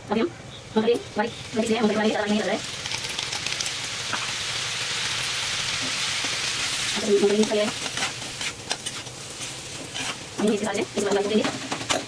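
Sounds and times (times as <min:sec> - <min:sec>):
cauliflower sizzling in a pan: 0:00.7 - 0:12.0
steel spatula scraping a pan: 0:06.6 - 0:10.7.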